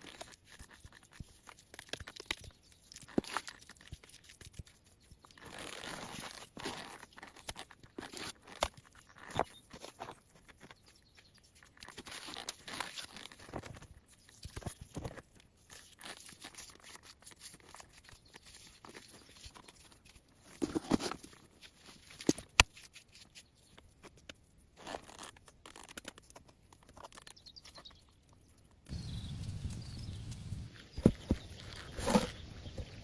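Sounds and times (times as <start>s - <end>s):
twigs and dry leaves crunching: 0.0s - 33.0s
leaves rustling: 28.9s - 33.0s.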